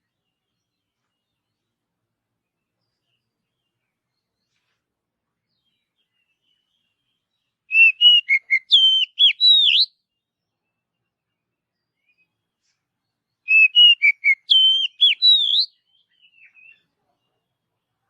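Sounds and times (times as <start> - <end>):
bird singing whistled notes: 5.5 - 11.0, 11.7 - 12.4, 13.0 - 16.9.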